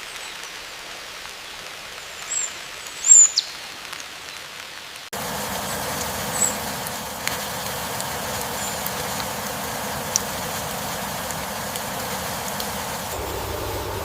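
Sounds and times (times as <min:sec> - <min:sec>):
rain-like hiss: 0:00.0 - 0:14.0
dense background noise: 0:05.2 - 0:14.0.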